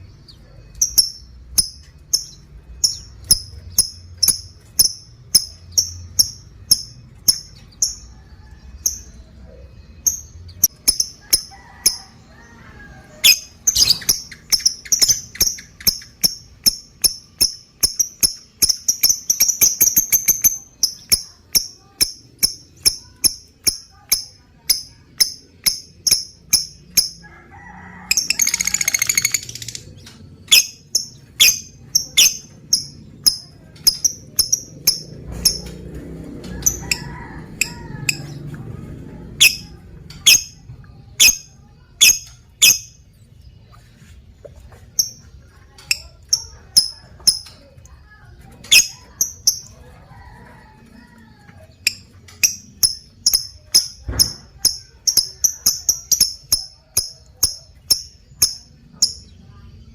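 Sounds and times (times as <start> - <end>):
bird chirping: 0.0 - 12.5, 13.1 - 27.2, 28.1 - 35.8, 39.3 - 47.7, 48.6 - 49.8.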